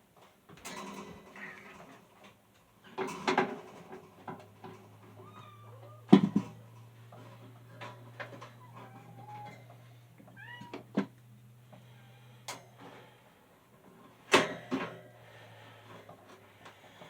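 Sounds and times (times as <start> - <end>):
fan parts knocking and clattering: 0.1 - 17.0
cat meowing: 5.2 - 6.2, 8.6 - 9.7, 10.3 - 11.0.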